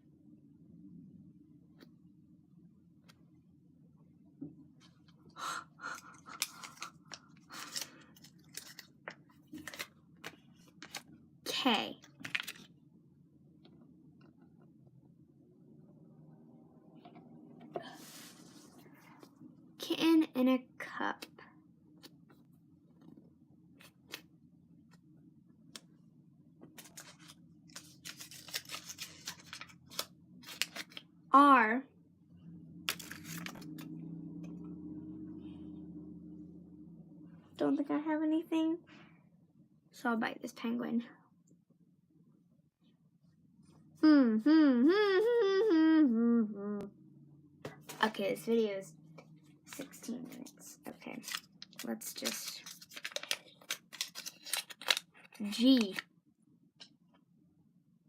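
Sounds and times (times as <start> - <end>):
low room hum: 0.0 - 58.0
paper rustling and crinkling: 6.2 - 11.1, 12.0 - 12.7, 26.7 - 31.1, 32.9 - 33.8, 49.7 - 56.0.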